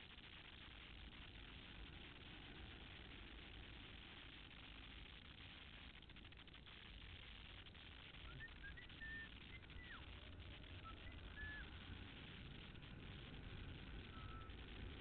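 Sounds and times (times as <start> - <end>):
low hiss and rumble: 0.0 - 15.0
bird chirping faintly: 8.1 - 15.0.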